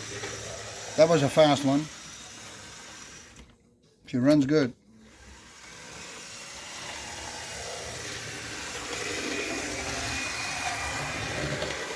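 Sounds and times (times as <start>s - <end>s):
model locomotive running on track: 5.2s - 11.9s.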